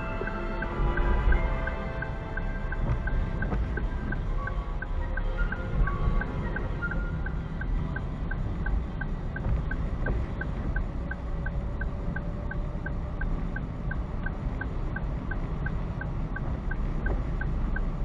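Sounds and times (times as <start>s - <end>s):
car driving rumble: 0.0s - 18.0s
turn signal ticking: 0.0s - 18.0s.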